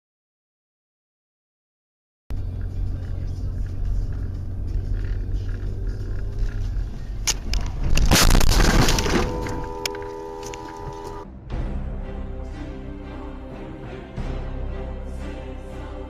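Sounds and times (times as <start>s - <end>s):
low rumble: 2.3s - 13.4s
loud crash-like burst: 7.9s - 10.0s
held musical chord: 9.1s - 16.0s.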